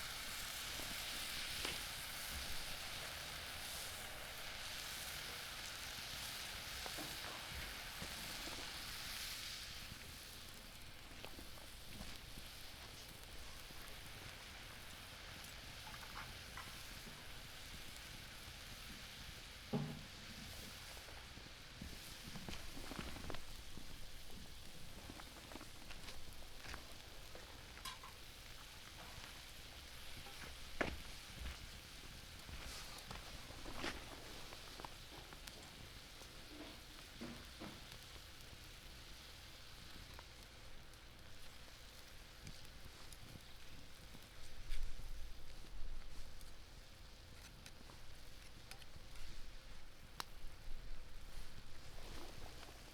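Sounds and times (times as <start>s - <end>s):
broth simmering with sizzle: 0.0s - 52.9s
small ticks and pops: 21.9s - 31.6s, 33.0s - 52.9s.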